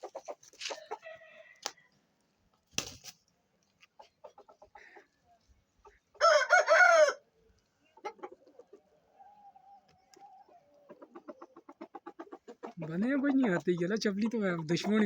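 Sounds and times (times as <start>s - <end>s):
chicken clucking: 0.0s - 1.8s, 3.7s - 15.0s
rooster crowing: 6.2s - 7.2s.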